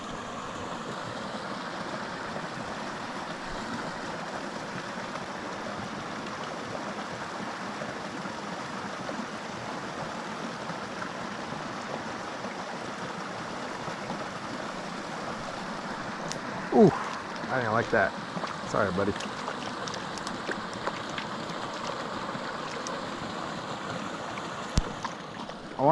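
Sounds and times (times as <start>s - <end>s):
creek water running over rocks: 0.0s - 25.9s.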